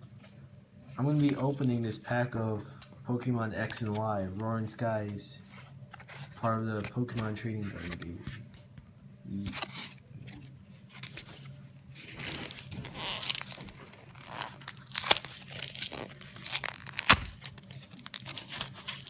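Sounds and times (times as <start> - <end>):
foil wrapper tearing and crinkling: 12.0 - 19.0.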